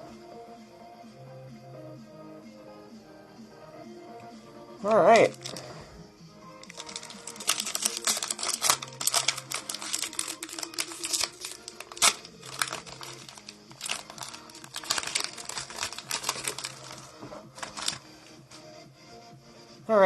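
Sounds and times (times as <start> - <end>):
faint background music: 0.0 - 20.0
foil pack crinkling: 5.1 - 5.7, 6.6 - 18.1
cards clicking: 6.6 - 18.0.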